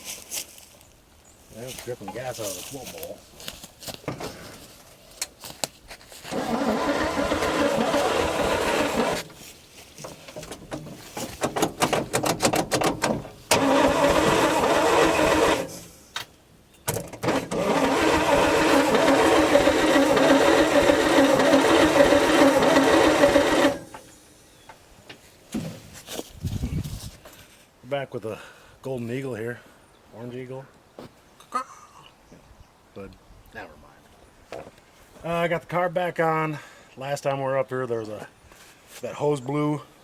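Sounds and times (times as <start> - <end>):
motor running in bursts: 6.3 - 9.3, 13.5 - 15.8, 17.2 - 24.1.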